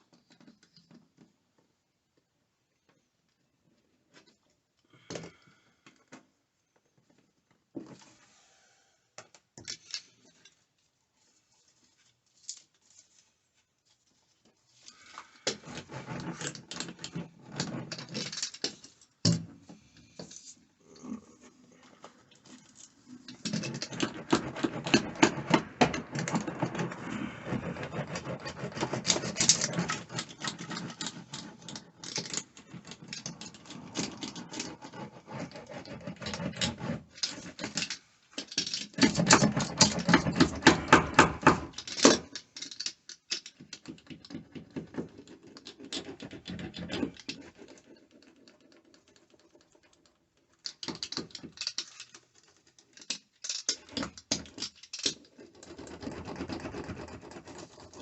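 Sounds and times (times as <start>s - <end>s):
rapid clicking and crackling: 22.0s - 58.0s.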